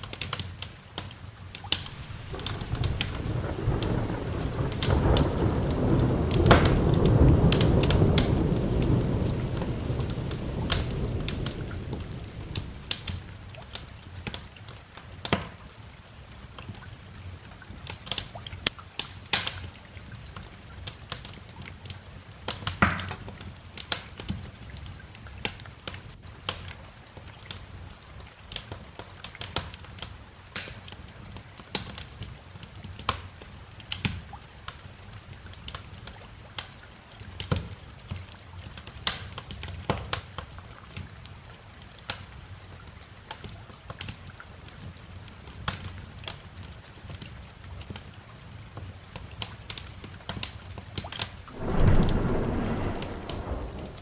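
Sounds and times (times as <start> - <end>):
wood fire crackling and popping: 1.0 - 14.4, 51.5 - 54.0.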